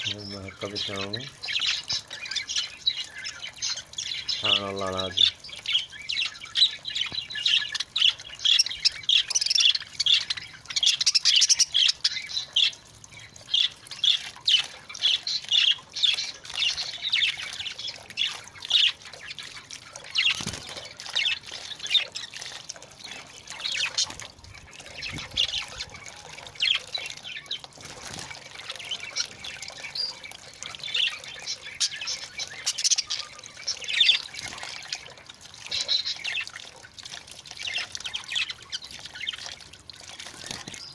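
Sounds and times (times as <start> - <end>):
budgerigars chattering: 0.0 - 12.8
water splashing: 0.0 - 40.9.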